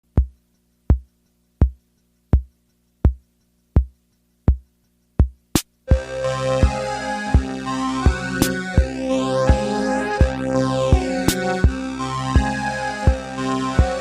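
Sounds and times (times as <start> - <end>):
drum machine kick: 0.1 - 6.0, 10.2 - 11.8
sustained synth chords: 5.9 - 14.0.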